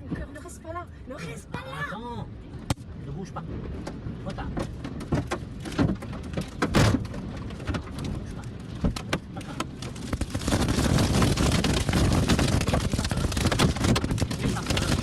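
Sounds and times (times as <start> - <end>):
low rumble: 2.2 - 15.0
rain and wind rushing: 2.2 - 15.0
knocks and clattering: 4.6 - 15.0.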